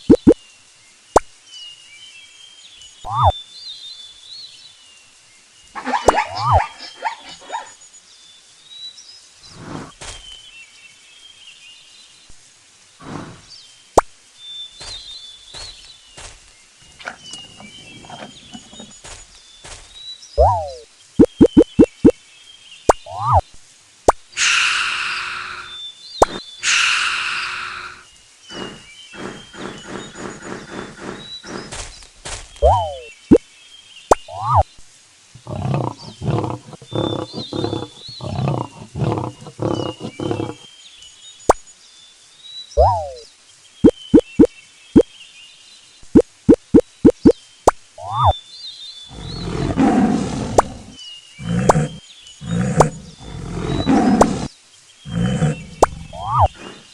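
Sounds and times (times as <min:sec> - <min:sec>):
small birds chirping: 0:00.0 - 0:56.9
animal-like call: 0:24.4 - 0:31.2
animal rasping roar-like calls: 0:35.4 - 0:40.7, 0:49.1 - 0:54.5.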